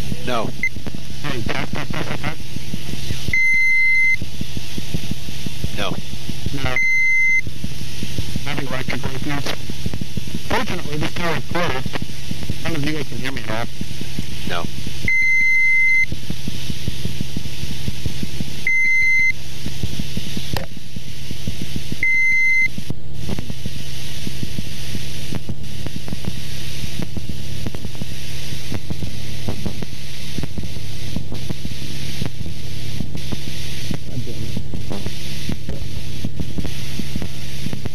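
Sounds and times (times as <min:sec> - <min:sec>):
high electronic beeps: 0:03.3 - 0:04.2, 0:06.6 - 0:07.4, 0:18.6 - 0:19.4.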